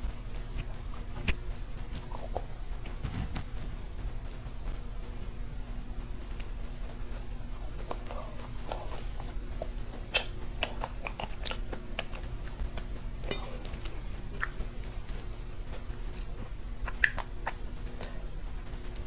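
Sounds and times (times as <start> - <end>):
macaron bitten and chewed: 6.2 - 19.0.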